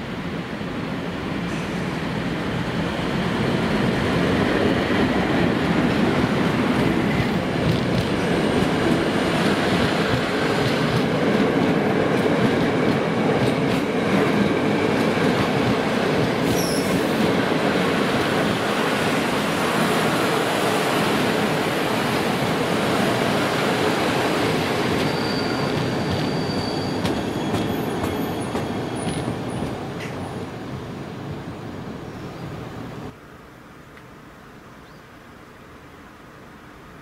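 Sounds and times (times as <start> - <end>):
train rumble passing: 1.0 - 33.2
brief high squeal: 16.4 - 17.1, 25.0 - 29.1.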